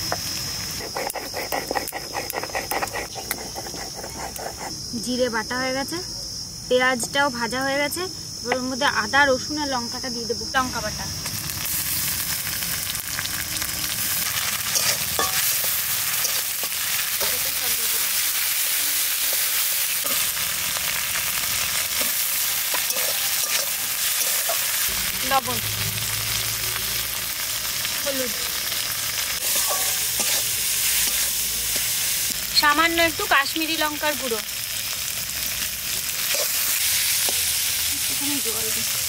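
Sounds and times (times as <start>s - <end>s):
food sizzling in hot oil: 0.0s - 5.9s, 6.7s - 39.0s
metal spatula scraping pan: 0.9s - 4.6s, 14.6s - 17.4s, 21.6s - 24.9s, 29.4s - 31.4s.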